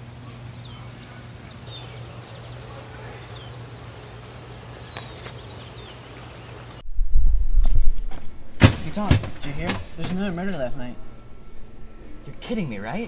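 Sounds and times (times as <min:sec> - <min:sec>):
small birds chirping: 0:00.0 - 0:06.8
steady low hum: 0:00.0 - 0:13.0.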